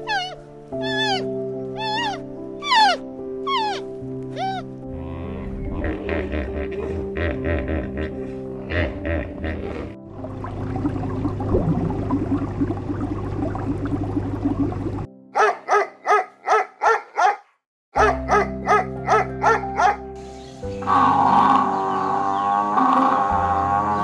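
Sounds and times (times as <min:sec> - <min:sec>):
background music: 0:00.0 - 0:17.4, 0:18.0 - 0:24.0
dog barking: 0:15.4 - 0:20.0.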